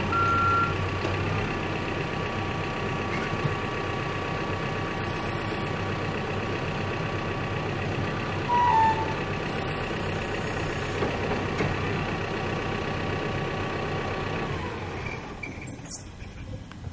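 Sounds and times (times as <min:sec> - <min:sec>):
diesel engine idling: 0:00.0 - 0:16.9.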